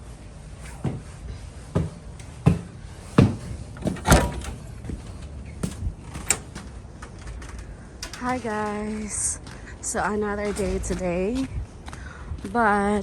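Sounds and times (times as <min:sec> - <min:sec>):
knocks and thumps: 0:02.2 - 0:06.6.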